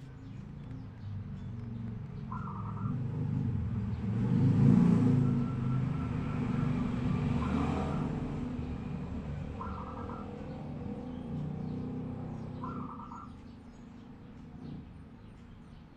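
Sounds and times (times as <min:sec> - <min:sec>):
vehicle engine rumble passing: 0:00.0 - 0:15.9
bird short calls: 0:12.6 - 0:13.4.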